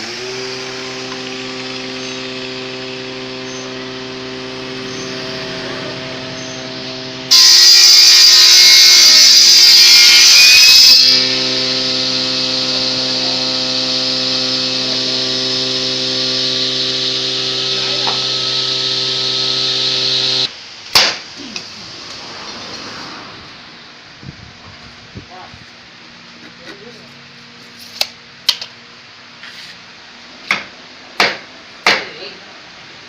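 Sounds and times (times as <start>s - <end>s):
motor humming unloaded: 0.0s - 20.6s
power tool cutting wood: 0.0s - 20.6s, 21.4s - 23.6s
sharp knock: 20.9s - 21.3s.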